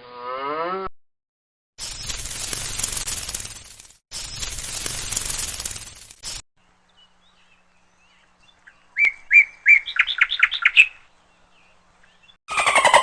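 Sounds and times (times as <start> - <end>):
small songbird singing: 6.6 - 13.0.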